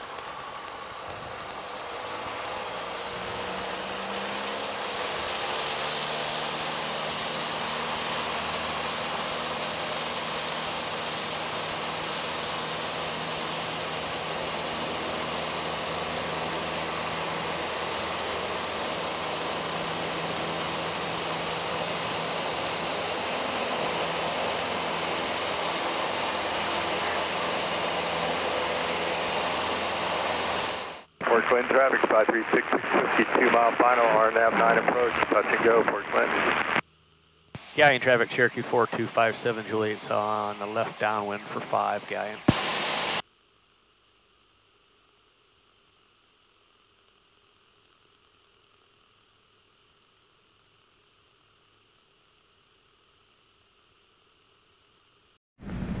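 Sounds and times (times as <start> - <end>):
airplane engine and propeller drone: 0.0 - 43.2, 55.6 - 56.0.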